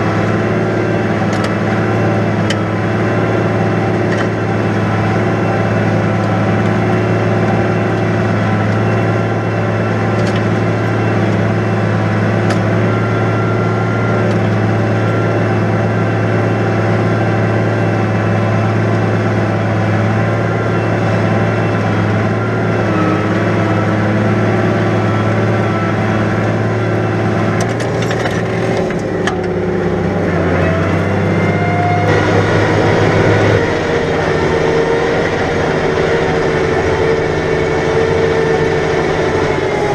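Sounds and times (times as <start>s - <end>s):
tractor diesel engine running: 0.0s - 39.9s
knocks and clatters: 27.6s - 29.5s.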